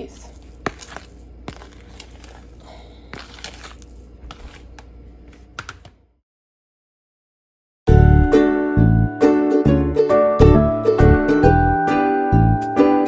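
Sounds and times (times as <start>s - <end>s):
cookie dough worked in a bowl: 0.0s - 5.5s.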